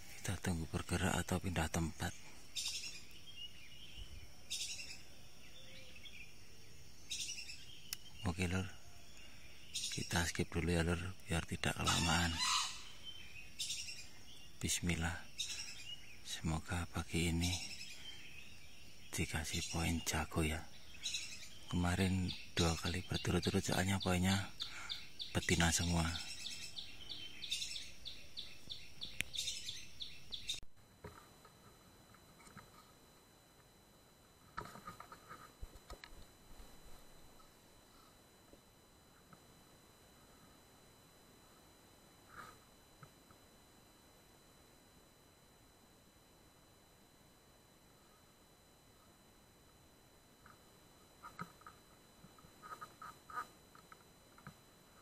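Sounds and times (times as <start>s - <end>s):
small bird trilled chirps: 0.2s - 30.6s.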